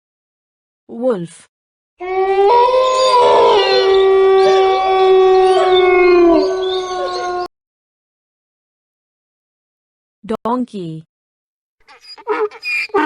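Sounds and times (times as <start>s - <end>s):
wolves howling: 2.0s - 7.5s.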